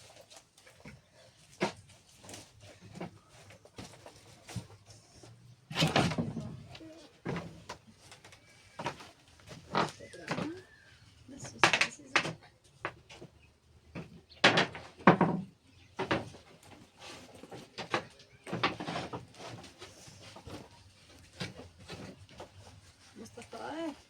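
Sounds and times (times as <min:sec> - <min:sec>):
sharp knocks and clatters: 0:11.4 - 0:22.8.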